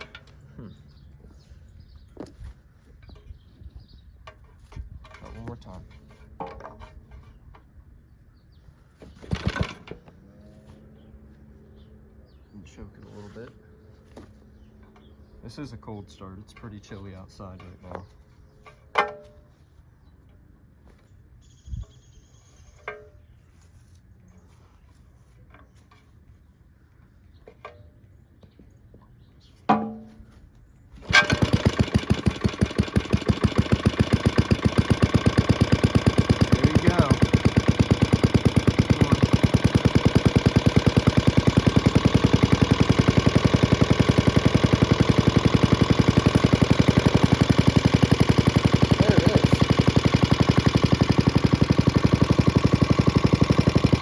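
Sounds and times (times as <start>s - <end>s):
single-cylinder engine running: 0.0s - 0.8s, 9.0s - 18.1s, 31.0s - 54.0s
pull starter cord: 9.0s - 10.2s, 31.0s - 54.0s.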